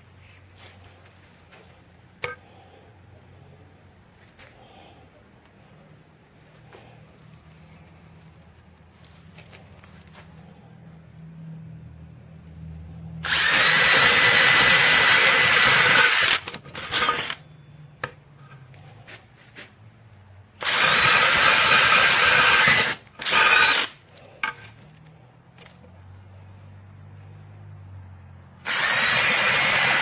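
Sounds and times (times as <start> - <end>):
cordless hammer drill running: 13.2 - 17.4, 20.6 - 24.0, 28.6 - 30.0.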